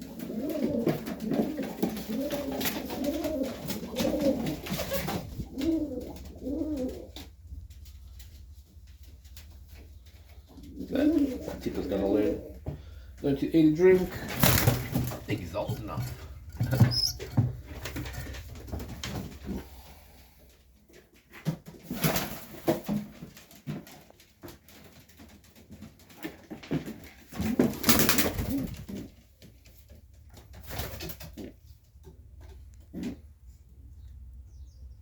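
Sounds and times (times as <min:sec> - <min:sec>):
pigeons cooing: 0:00.0 - 0:07.4, 0:10.2 - 0:20.1
noisy rustling: 0:00.7 - 0:20.5.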